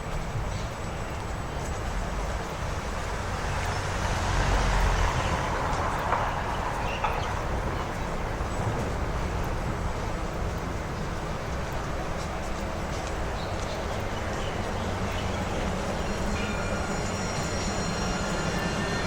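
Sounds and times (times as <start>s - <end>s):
city street noise: 0.0s - 19.0s
vehicle passing: 2.7s - 10.2s.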